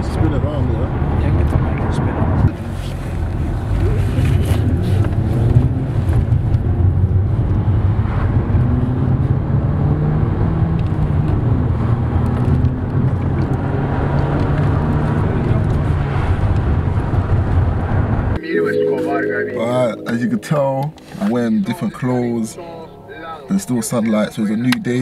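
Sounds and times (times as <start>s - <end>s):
road noise: 0.0s - 18.4s.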